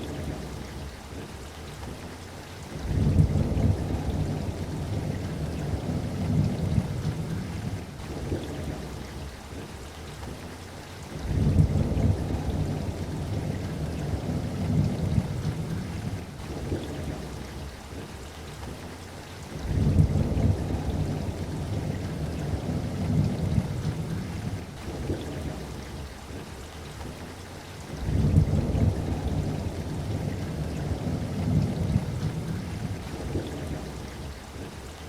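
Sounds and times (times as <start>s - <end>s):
steady rain: 0.0s - 35.0s
thunder rumbling: 2.8s - 9.3s, 11.2s - 18.1s, 19.6s - 26.2s, 27.9s - 35.0s.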